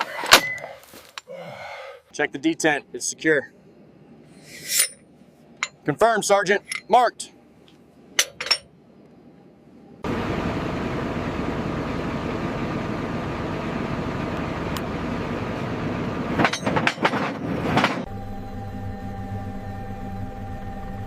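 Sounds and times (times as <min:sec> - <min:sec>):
quiet steady hum: 0:00.0 - 0:10.1
metal clanks: 0:05.6 - 0:05.9, 0:08.2 - 0:08.7, 0:16.4 - 0:18.1
loud mechanical rumble: 0:09.6 - 0:21.0.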